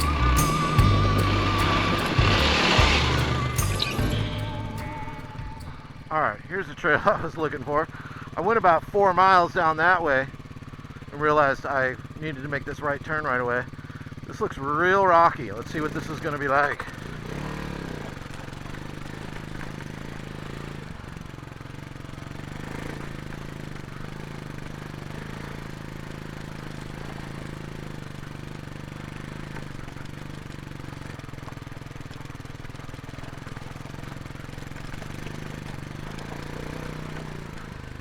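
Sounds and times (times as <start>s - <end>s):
dirt bike engine at low revs: 0.0s - 38.0s.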